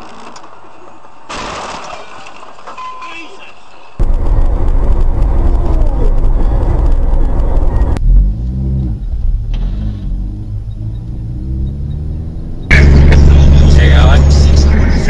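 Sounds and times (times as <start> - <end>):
road noise: 2.2 - 15.0
car engine revving and shifting: 6.9 - 15.0.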